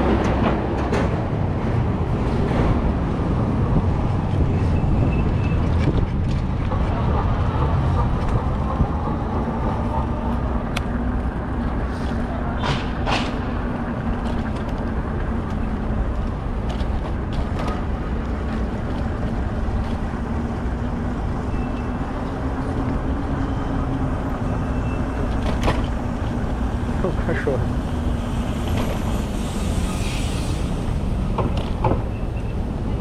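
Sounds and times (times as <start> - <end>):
street traffic: 0.0 - 33.0
wind rumble: 0.0 - 33.0.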